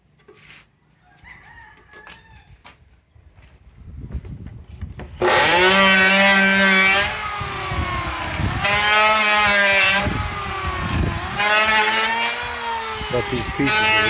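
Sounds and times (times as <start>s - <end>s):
electric wood planer running: 5.2s - 14.0s.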